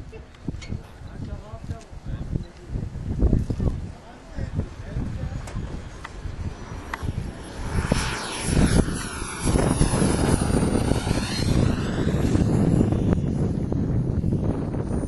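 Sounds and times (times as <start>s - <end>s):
model jet engine whining: 3.6s - 15.0s.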